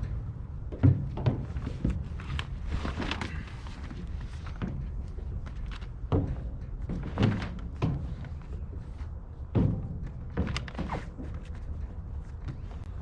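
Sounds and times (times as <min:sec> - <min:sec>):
heavy thuds and knocks of tarp: 0:06.1 - 0:08.3.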